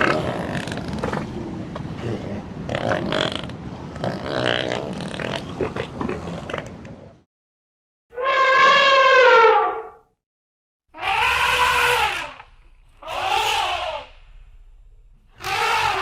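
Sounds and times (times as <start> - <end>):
animal rough calls: 10.9 - 14.6, 15.3 - 16.0
animal short pitched cries: 11.0 - 12.4, 13.0 - 14.1, 15.4 - 16.0.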